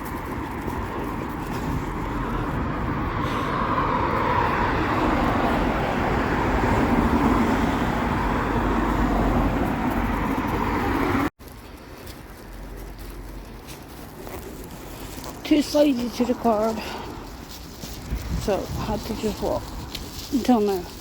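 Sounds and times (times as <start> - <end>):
vehicles passing on road: 0.0 - 21.0.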